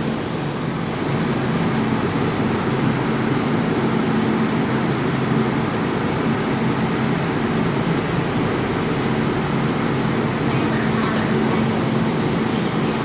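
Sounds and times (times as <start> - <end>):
constant low hum: 0.0 - 13.0
train rumbling from inside car: 9.4 - 13.0.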